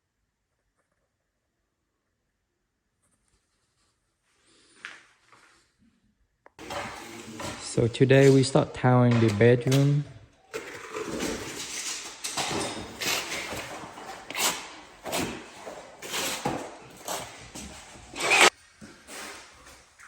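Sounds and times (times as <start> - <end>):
tiles scraping and knocking: 6.6 - 18.6.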